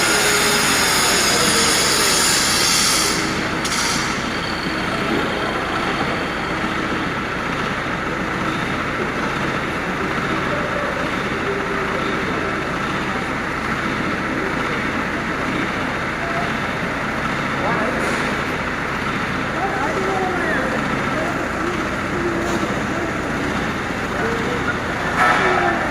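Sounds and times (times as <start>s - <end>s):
engine idling: 0.0s - 25.9s.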